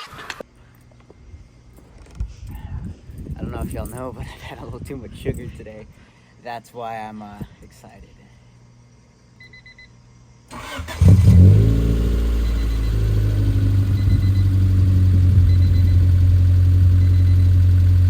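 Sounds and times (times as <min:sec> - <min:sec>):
car engine starting and idling: 0:10.5 - 0:18.0
seatbelt warning beeps: 0:12.3 - 0:17.6.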